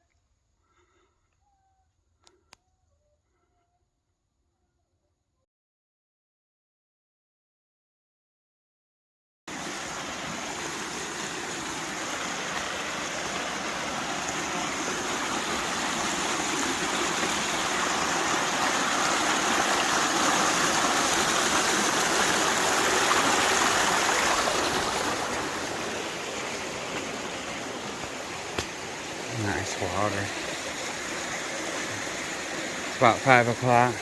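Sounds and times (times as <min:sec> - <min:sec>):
mountain stream rushing: 0:09.5 - 0:34.0.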